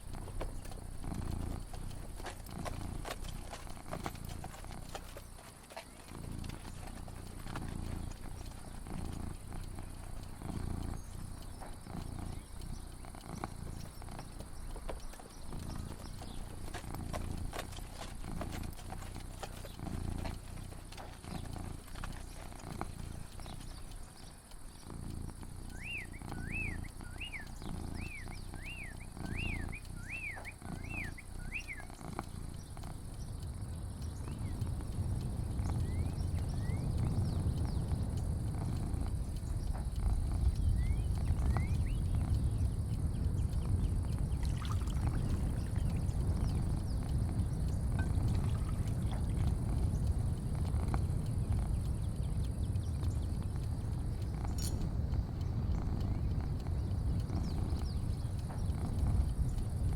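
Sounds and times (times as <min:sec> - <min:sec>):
bird chirping: 0:00.0 - 0:59.9
faint clicks: 0:00.0 - 0:59.9
low rumble: 0:31.6 - 0:59.9.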